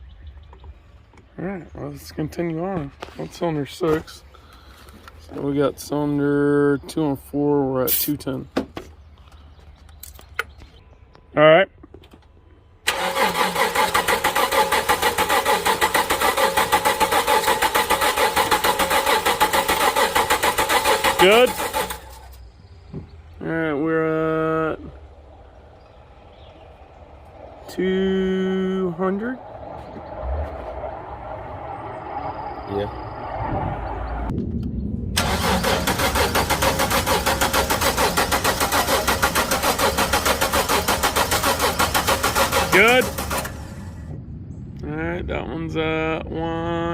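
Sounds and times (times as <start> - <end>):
car engine cranking on starter: 12.9 - 22.5, 35.2 - 44.0.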